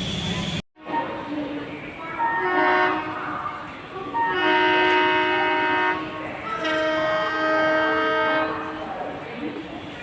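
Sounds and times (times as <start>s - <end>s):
train horn blasts: 2.2s - 3.2s, 4.2s - 8.9s.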